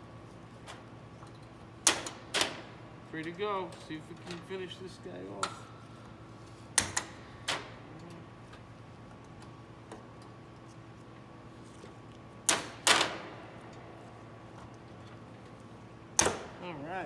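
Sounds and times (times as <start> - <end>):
wire cutters snapping piano strings: 16.2 - 16.5.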